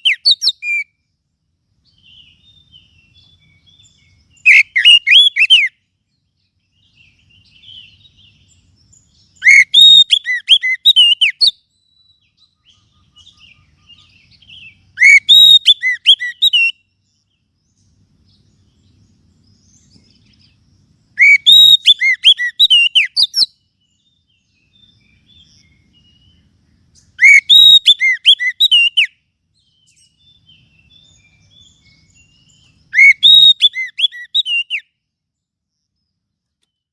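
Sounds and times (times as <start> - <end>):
bird whistled call: 0.0 - 1.0, 2.0 - 5.9, 9.1 - 17.0, 21.2 - 26.4, 27.0 - 35.0.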